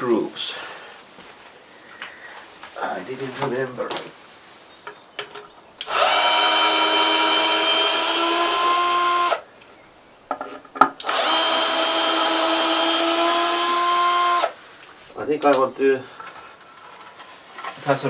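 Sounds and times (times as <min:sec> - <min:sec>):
cordless drill whining: 0:05.8 - 0:09.5, 0:11.0 - 0:14.6.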